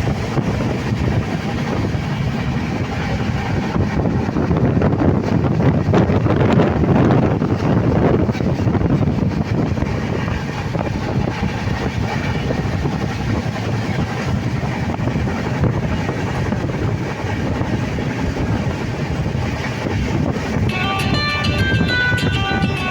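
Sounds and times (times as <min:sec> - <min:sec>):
train rumbling: 0:00.0 - 0:22.9.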